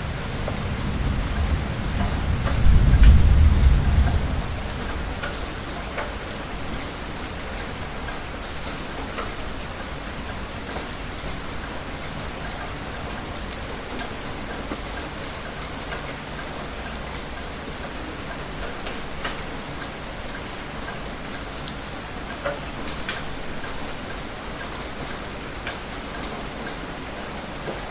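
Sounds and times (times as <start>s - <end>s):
thunder rumble: 0.0s - 6.8s
heavy rain falling: 0.0s - 27.9s.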